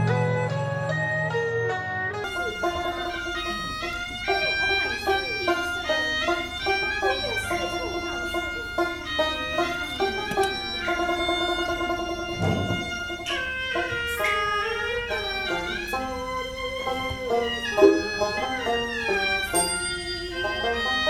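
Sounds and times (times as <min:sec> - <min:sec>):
bowed strings melody: 0:00.0 - 0:21.0
plucked strings: 0:00.0 - 0:21.0
low thump: 0:12.2 - 0:13.3.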